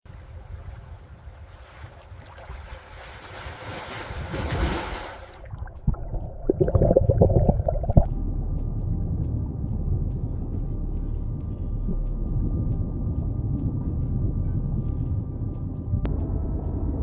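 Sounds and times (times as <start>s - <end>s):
ocean water rushing and splashing: 0.1s - 8.1s
low underwater thumps: 4.4s - 10.2s
muffled underwater rumble: 5.3s - 17.0s.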